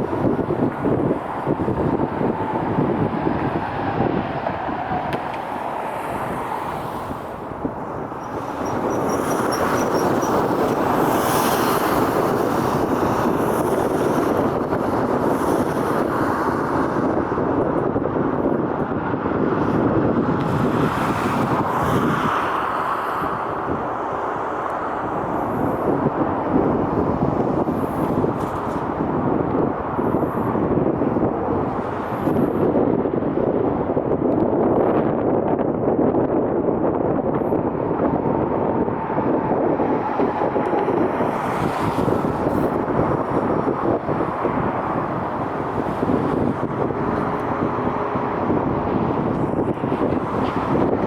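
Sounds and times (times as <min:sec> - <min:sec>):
wind buffeting the microphone: 0:00.0 - 0:51.0
jet engine rushing: 0:38.4 - 0:51.0.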